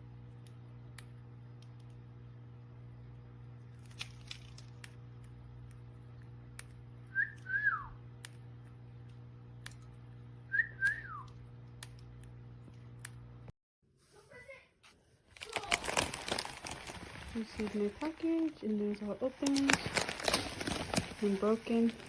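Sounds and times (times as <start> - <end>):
bird whistling call: 7.1 - 8.0, 10.5 - 11.3.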